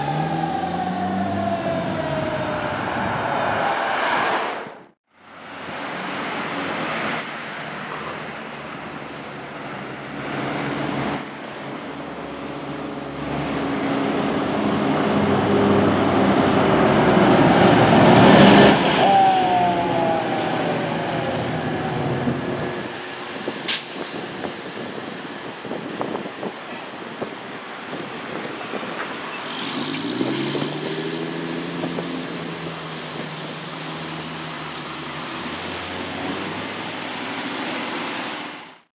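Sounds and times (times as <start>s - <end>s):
diesel engine passing by: 0.0s - 25.4s, 28.7s - 38.8s.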